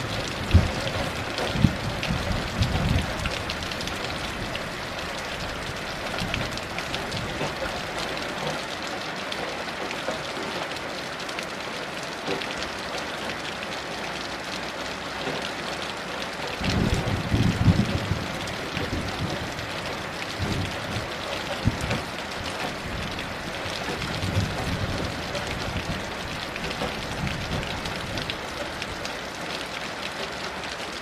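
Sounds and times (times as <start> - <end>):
distant thunder rumbles: 0.0 - 7.6, 16.6 - 28.3
heavy rain falling: 0.0 - 31.0.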